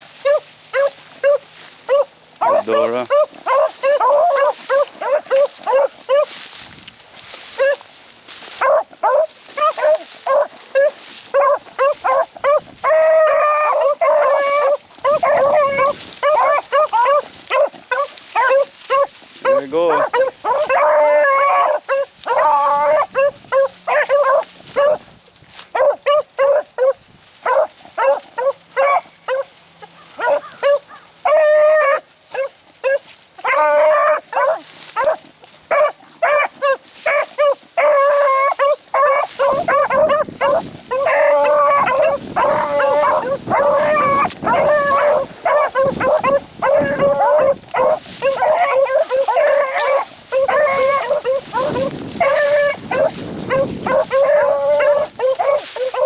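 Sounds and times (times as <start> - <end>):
hounds baying and howling: 0.0 - 56.0.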